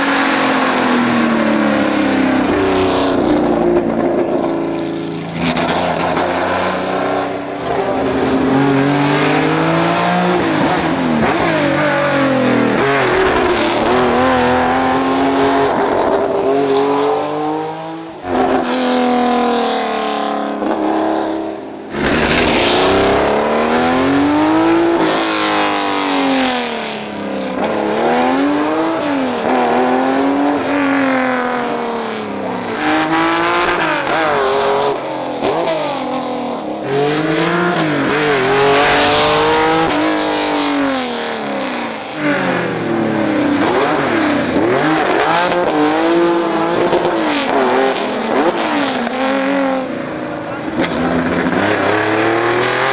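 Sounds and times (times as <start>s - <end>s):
race car engines revving: 0.0s - 52.9s.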